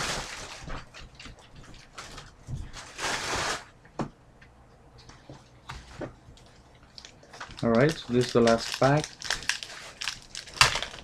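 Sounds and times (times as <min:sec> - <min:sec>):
foil wrappers rustling and crinkling: 0:00.0 - 0:00.9, 0:01.8 - 0:03.7, 0:06.9 - 0:11.0.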